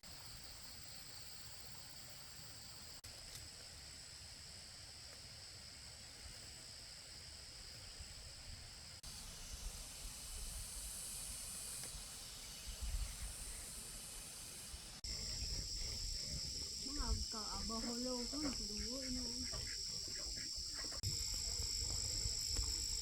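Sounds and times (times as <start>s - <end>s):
insects chirring: 0.0s - 23.0s
broad high hiss: 3.0s - 19.3s.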